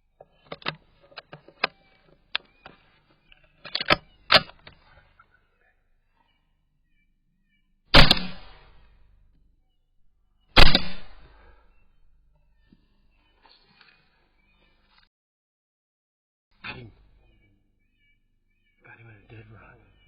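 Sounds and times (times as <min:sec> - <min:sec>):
rifle action metallic clicks: 0:03.6 - 0:04.8, 0:08.0 - 0:08.6, 0:10.6 - 0:11.3
loud gunshot bang: 0:08.0 - 0:08.7, 0:10.6 - 0:11.3.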